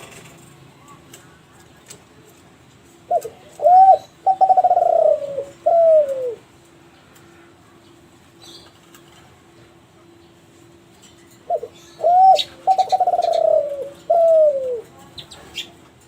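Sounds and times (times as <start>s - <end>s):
dove cooing: 3.1s - 6.5s, 11.4s - 15.7s.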